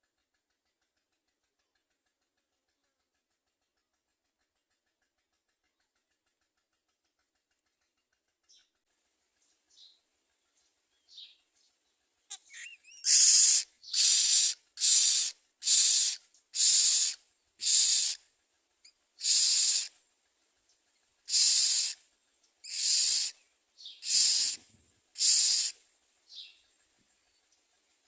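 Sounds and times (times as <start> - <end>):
faint short chirps: 12.3 - 13.5
birds giving harsh hissing rasps: 12.3 - 18.2, 19.2 - 20.0, 21.3 - 22.0, 22.6 - 26.7.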